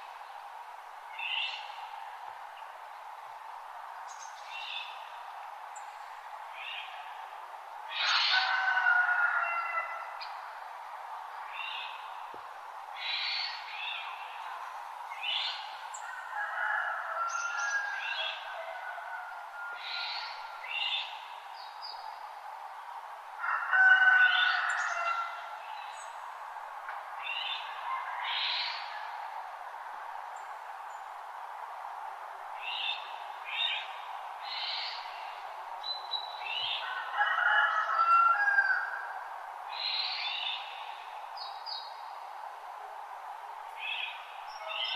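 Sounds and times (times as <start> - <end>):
background hiss: 0.0 - 9.2, 17.0 - 23.5, 24.3 - 37.2, 38.7 - 44.9.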